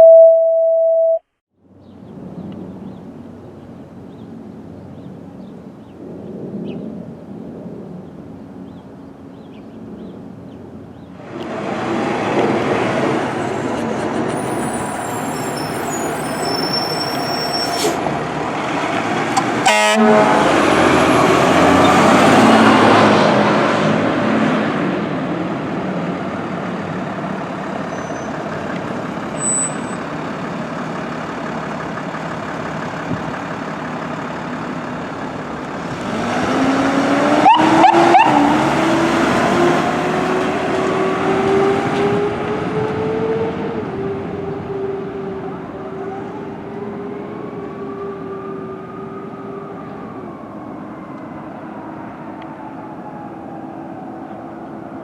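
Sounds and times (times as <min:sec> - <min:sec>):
truck engine and road noise: 0:00.0 - 0:55.0
horn blasts: 0:19.4 - 0:20.6.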